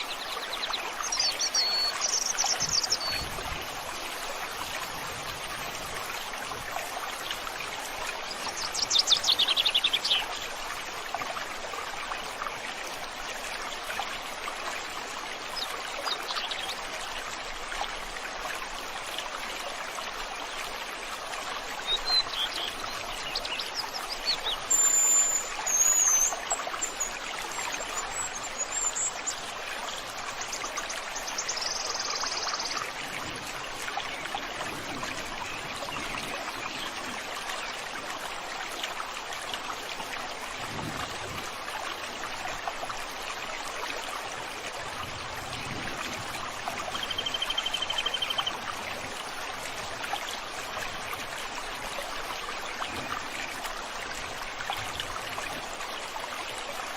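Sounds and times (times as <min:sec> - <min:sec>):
songbirds calling: 0:00.0 - 0:04.0, 0:21.8 - 0:37.8, 0:46.8 - 0:49.0
stream flowing: 0:00.0 - 0:56.9.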